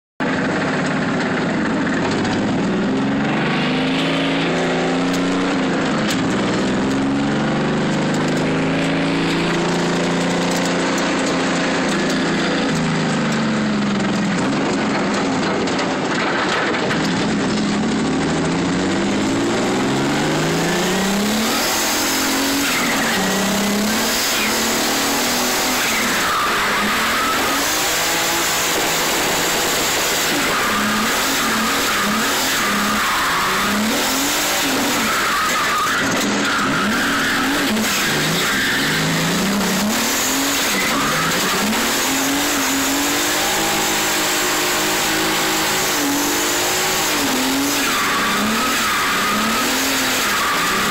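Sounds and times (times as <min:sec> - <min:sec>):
car engine revving: 0:00.2 - 0:50.9
tyres squealing: 0:20.2 - 0:43.9.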